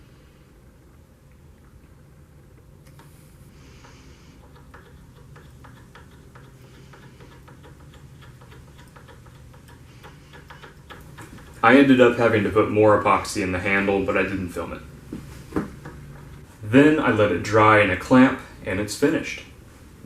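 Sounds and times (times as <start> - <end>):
low steady hum: 0.0 - 20.0
hands handling parts clicking: 3.8 - 11.9.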